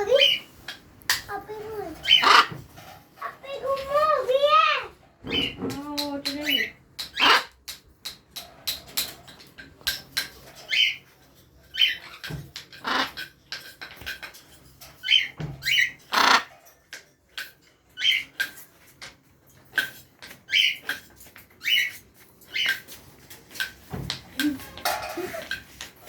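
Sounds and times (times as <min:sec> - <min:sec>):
macaw calls: 0:02.0 - 0:02.6, 0:06.4 - 0:07.6, 0:12.8 - 0:13.2
macaw chirping: 0:02.0 - 0:02.6, 0:06.4 - 0:07.6.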